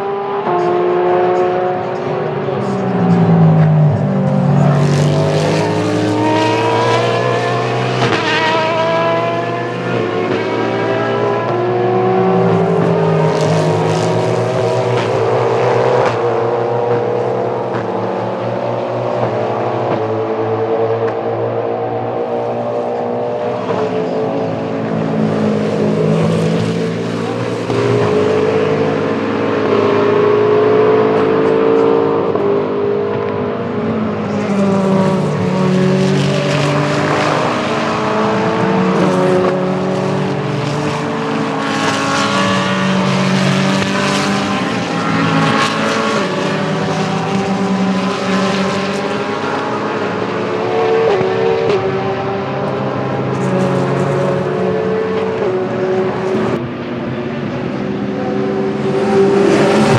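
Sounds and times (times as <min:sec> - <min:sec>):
race cars passing at speed: 0:00.0 - 0:59.9.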